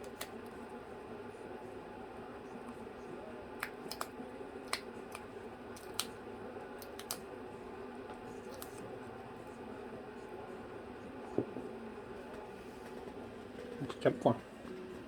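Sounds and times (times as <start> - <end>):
sharp clicks and snips: 3.6 - 4.1, 4.7 - 6.1, 6.8 - 7.2, 8.5 - 8.8.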